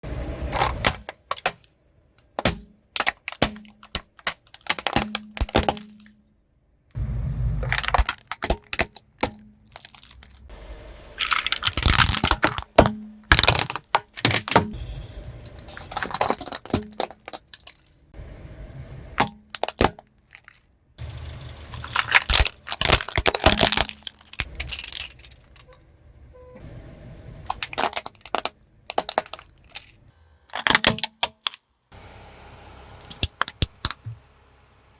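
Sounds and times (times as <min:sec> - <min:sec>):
plastic toys cracking under tyres: 0:00.5 - 0:06.2, 0:07.6 - 0:10.5, 0:11.2 - 0:14.8, 0:15.5 - 0:18.1, 0:21.7 - 0:25.7, 0:27.5 - 0:31.7, 0:33.0 - 0:34.2
low tyre rumble: 0:07.0 - 0:08.4, 0:09.4 - 0:16.7, 0:21.0 - 0:27.9, 0:31.9 - 0:34.9.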